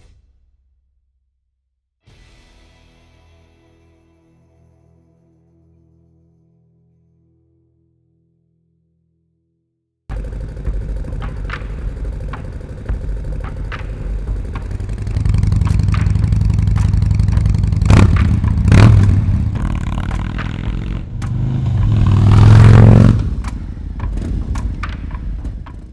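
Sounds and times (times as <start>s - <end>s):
motorcycle engine revving: 10.1s - 25.9s
sharp clicks: 10.6s - 25.9s.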